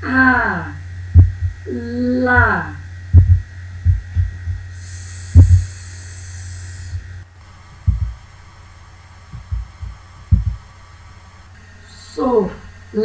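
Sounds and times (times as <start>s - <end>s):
low electrical hum: 0.0s - 13.0s
dull low thumps: 0.8s - 5.8s, 6.9s - 7.2s, 7.8s - 8.3s, 9.3s - 10.8s.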